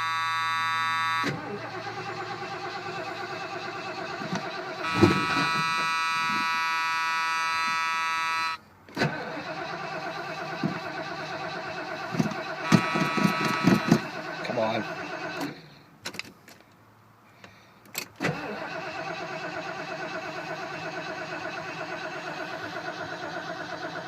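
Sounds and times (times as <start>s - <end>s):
steady high whine: 0.0s - 8.6s
starter motor cranking engine: 9.0s - 15.7s, 18.2s - 24.0s.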